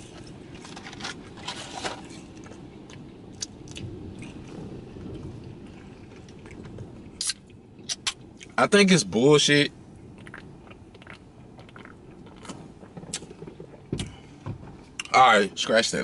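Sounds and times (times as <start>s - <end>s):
chewing french fries: 0.0s - 8.6s, 10.1s - 13.8s
low steady hum: 0.0s - 16.0s
wet mouth clicks: 7.2s - 8.2s, 10.2s - 13.3s.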